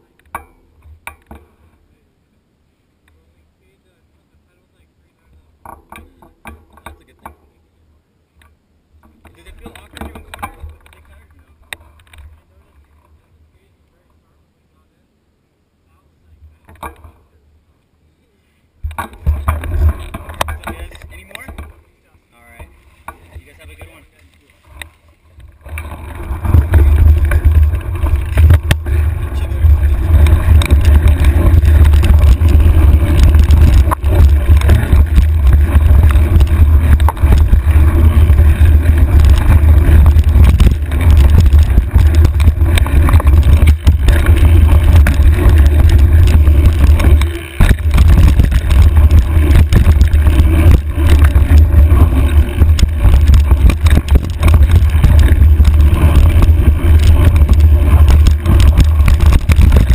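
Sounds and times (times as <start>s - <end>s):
bike knocking over rocks: 9.0s - 13.2s, 18.8s - 21.8s, 22.5s - 59.9s
bike rattling clatter: 9.0s - 13.2s, 18.8s - 59.9s
wind rumble: 24.6s - 59.9s.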